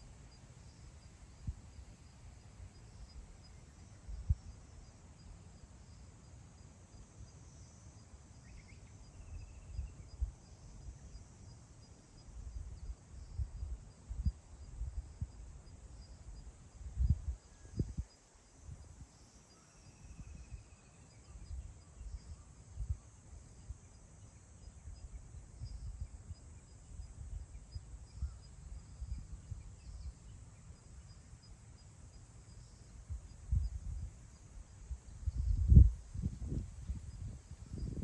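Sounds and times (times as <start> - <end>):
faint high-pitched chirring: 0.0 - 38.0
wind buffeting microphone: 34.8 - 38.0.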